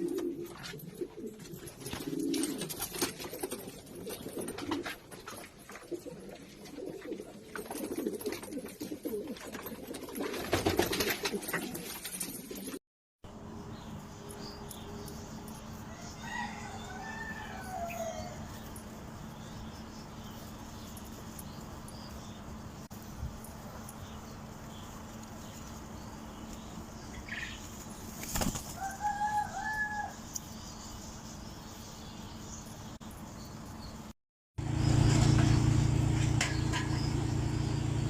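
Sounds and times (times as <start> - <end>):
pigeons flapping wings: 0.0 - 12.8, 27.7 - 29.0.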